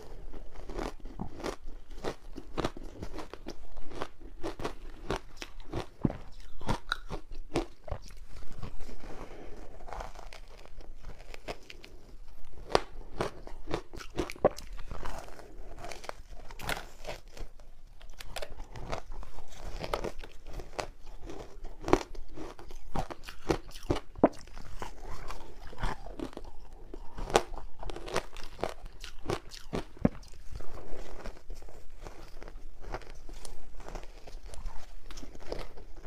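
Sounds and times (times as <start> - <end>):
ice crunching between teeth: 0.0 - 36.0.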